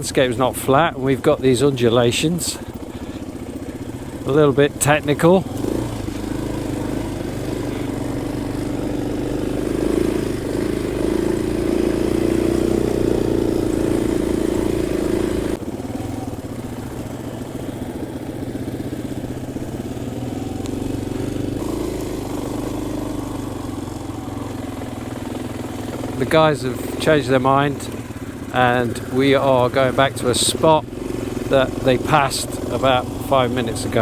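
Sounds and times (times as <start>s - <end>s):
dirt bike engine running: 0.0s - 34.0s.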